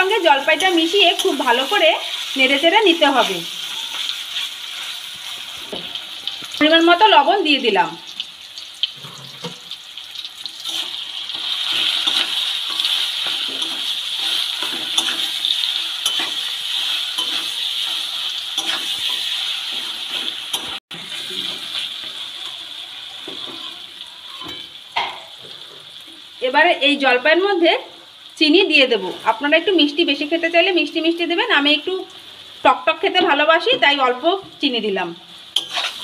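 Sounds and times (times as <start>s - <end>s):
food sizzling in hot oil: 0.0s - 36.0s
metal spatula scraping a pan: 10.5s - 24.7s, 35.6s - 36.0s.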